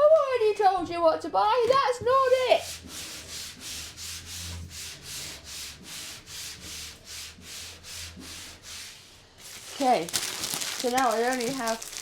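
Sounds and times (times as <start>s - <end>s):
hand rubbing pad on metal panel: 2.1s - 10.0s.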